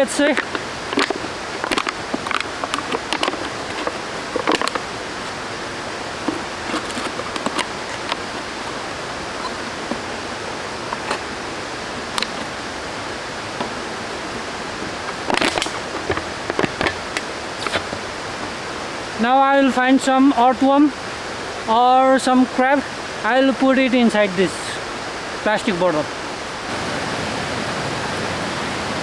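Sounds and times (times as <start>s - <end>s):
water rushing: 0.0s - 29.0s
sharp clicks and knocks: 0.2s - 5.4s, 6.2s - 10.1s, 12.0s - 12.5s, 13.5s - 18.6s.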